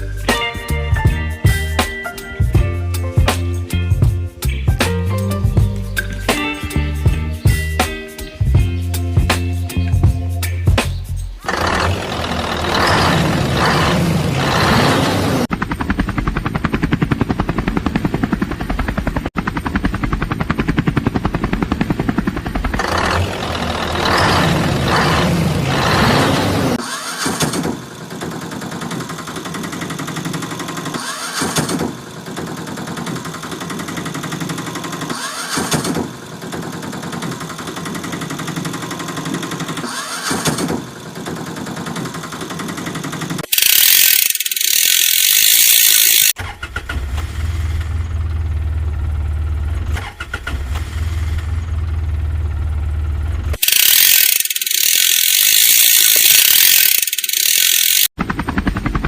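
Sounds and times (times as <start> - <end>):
loud ratcheting clatter: 11.4 - 18.9, 19.8 - 46.4, 53.6 - 59.0.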